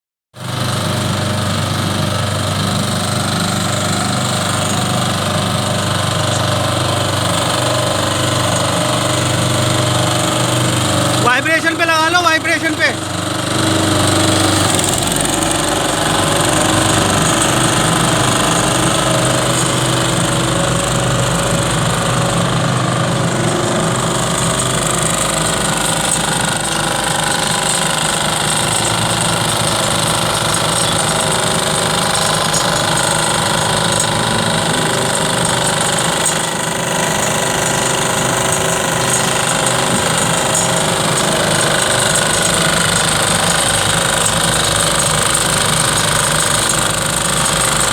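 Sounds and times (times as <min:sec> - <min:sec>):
road roller engine running: 0:00.4 - 0:47.9.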